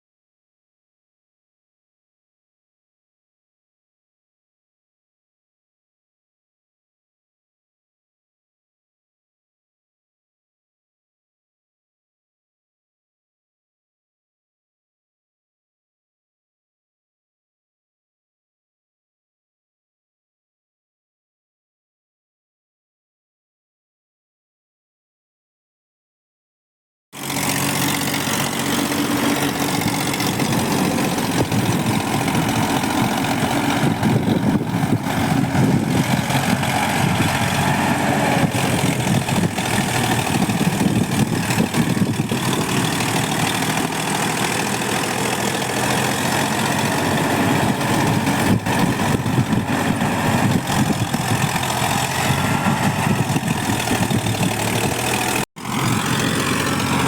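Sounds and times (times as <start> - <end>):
tractor engine running: 27.2 - 57.0.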